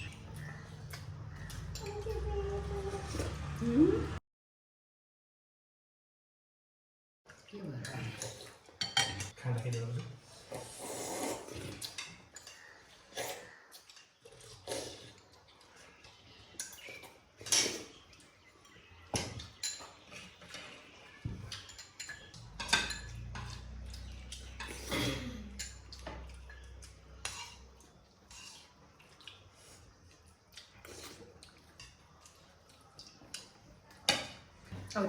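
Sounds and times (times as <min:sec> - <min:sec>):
cutlery clinking on plates: 0:08.2 - 0:10.1, 0:18.6 - 0:28.7, 0:31.7 - 0:34.9.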